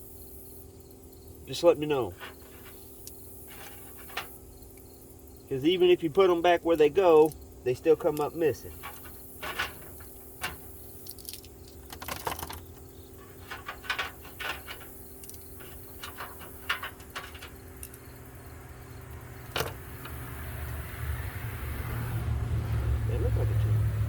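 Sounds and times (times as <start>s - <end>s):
low engine rumble: 1.4s - 24.0s
steel sockets clinking: 6.7s - 18.1s.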